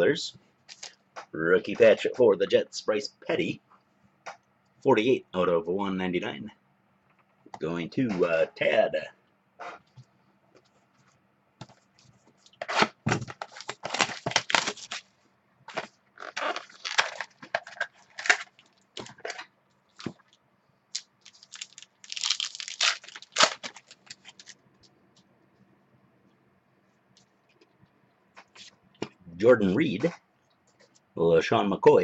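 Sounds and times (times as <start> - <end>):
wrapper crinkling and tearing: 12.4 - 15.1, 15.8 - 24.6.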